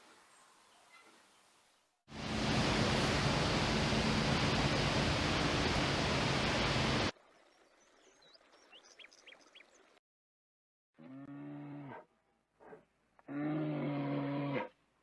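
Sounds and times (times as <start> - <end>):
loud steady rushing noise: 2.1 - 7.1.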